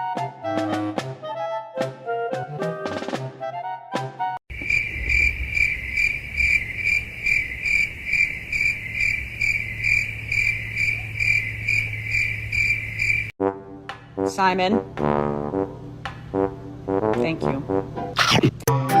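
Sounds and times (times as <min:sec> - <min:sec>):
music: 0:00.0 - 0:04.4, 0:13.4 - 0:19.0
cricket chirping: 0:04.5 - 0:13.4.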